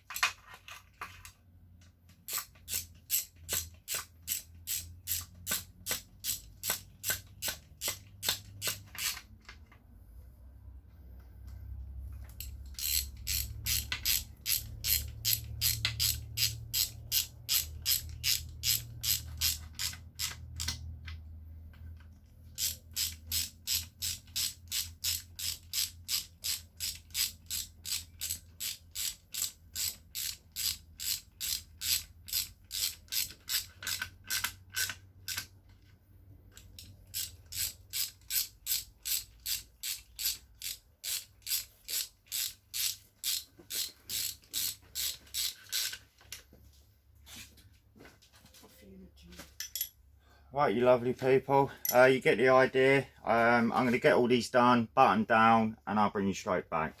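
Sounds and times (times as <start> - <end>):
socket ratchet clicking: 2.1 - 9.4, 12.3 - 21.0, 22.5 - 35.5, 36.5 - 46.0.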